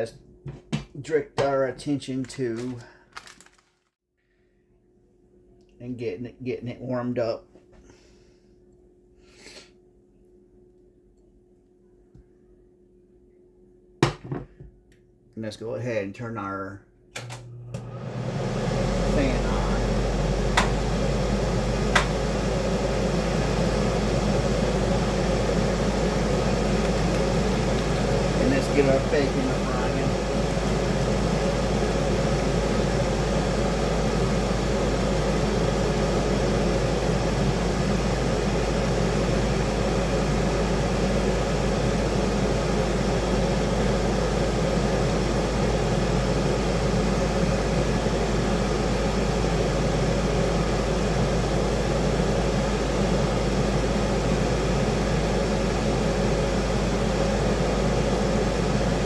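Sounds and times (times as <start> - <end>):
kitchen fan rushing air: 17.2 - 59.0.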